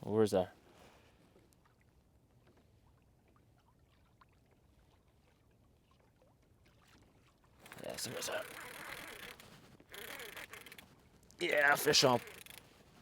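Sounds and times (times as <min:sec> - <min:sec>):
small ticks: 0:07.6 - 0:10.9, 0:11.8 - 0:12.6.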